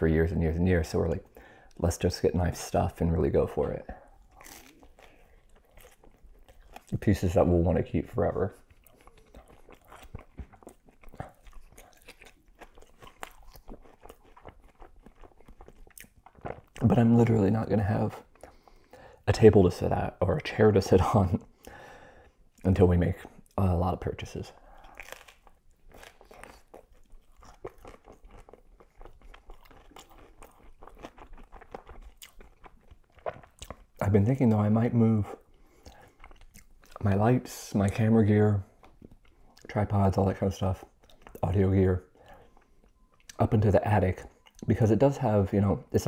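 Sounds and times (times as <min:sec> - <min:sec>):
crunchy chewing: 0:03.6 - 0:16.9, 0:24.5 - 0:34.1.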